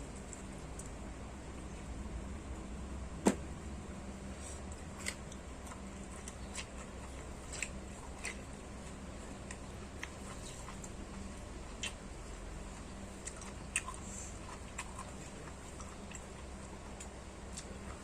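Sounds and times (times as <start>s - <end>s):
steady low hum: 0.0s - 18.0s
person chewing food: 4.3s - 18.0s.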